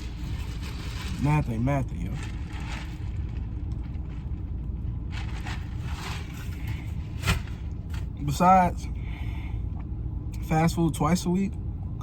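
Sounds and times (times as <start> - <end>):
soft scraping noises: 0.0 - 8.1
vehicle rumble: 0.0 - 12.0.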